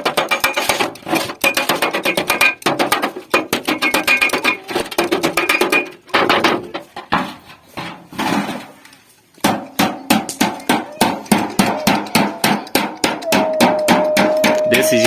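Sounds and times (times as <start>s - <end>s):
hammer striking sheet metal: 9.4s - 15.0s.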